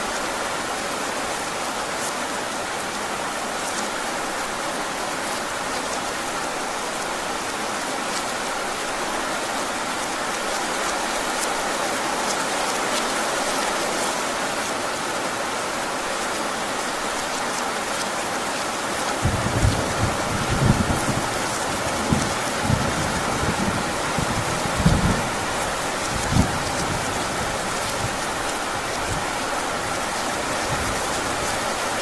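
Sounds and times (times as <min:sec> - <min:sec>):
heavy rain falling: 0:00.0 - 0:32.0
raindrops ticking: 0:09.7 - 0:13.8
low thunder rumble: 0:19.2 - 0:28.2.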